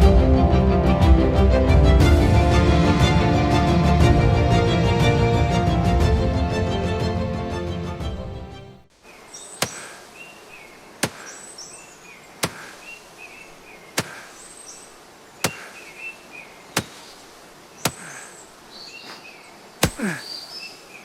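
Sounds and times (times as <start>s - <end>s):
small birds chirping: 8.9s - 21.0s
axe chopping wood: 9.6s - 10.0s, 11.0s - 11.4s, 12.4s - 12.8s, 14.0s - 14.3s, 15.4s - 15.8s, 16.8s - 17.2s, 17.8s - 18.2s, 19.8s - 20.2s.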